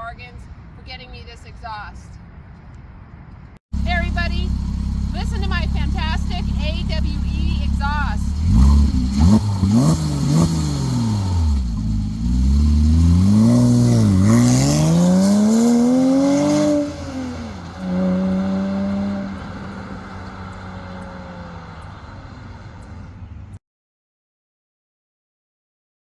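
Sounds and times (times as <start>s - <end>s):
car engine revving: 3.8s - 23.2s.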